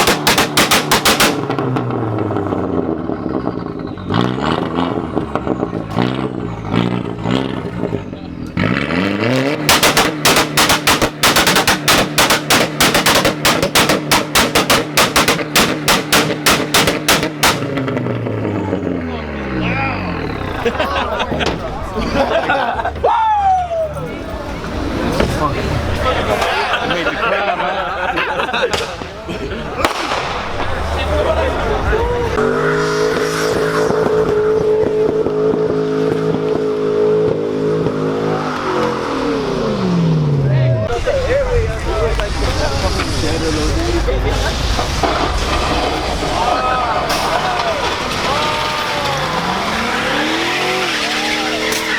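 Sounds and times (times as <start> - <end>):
loud exhaust pops: 0.0 - 18.9, 28.5 - 39.0, 41.0 - 51.9
car engine drone: 0.0 - 51.9.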